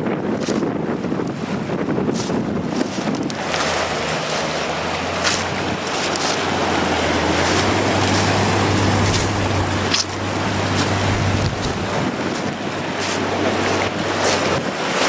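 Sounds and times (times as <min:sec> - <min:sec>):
wind buffeting microphone: 0:00.0 - 0:15.0
ocean surf: 0:00.9 - 0:15.0
low hum: 0:04.9 - 0:14.2.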